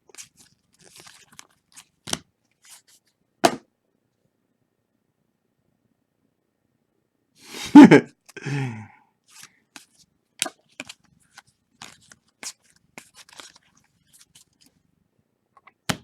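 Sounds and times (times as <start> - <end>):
trading cards scraping: 0.2 - 1.9, 10.8 - 14.7.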